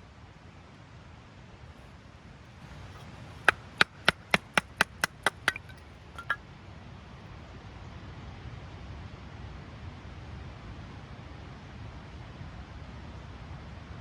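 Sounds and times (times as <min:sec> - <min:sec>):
sharp knocks: 0:02.9 - 0:06.4.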